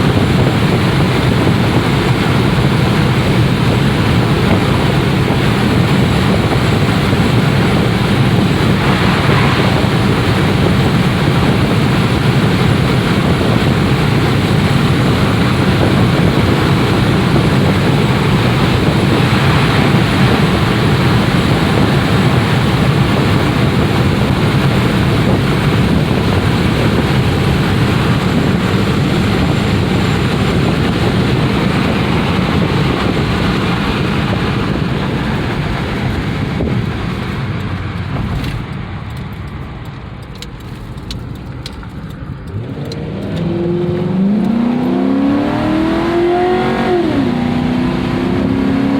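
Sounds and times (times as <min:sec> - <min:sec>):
car engine drone: 0:00.0 - 0:48.9
wind noise: 0:00.0 - 0:48.9
brief rushes: 0:07.5 - 0:12.0.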